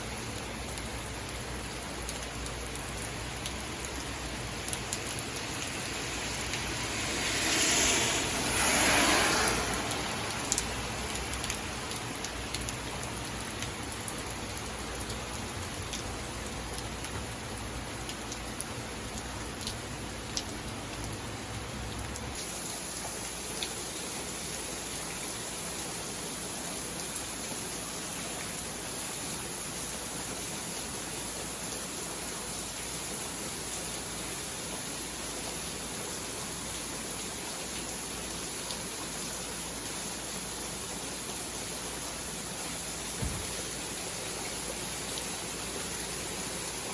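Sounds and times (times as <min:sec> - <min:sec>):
steady rain: 0:00.0 - 0:46.9
rushing swell: 0:06.6 - 0:10.2.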